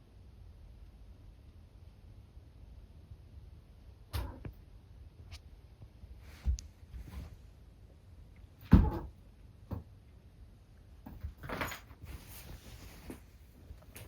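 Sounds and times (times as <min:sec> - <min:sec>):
cats scuffling: 0:11.0 - 0:14.0.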